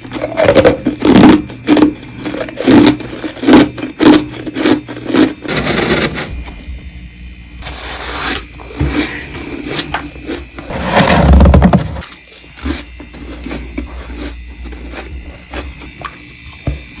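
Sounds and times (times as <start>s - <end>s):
frost being scraped and crunched: 5.5s - 6.5s, 10.7s - 12.0s.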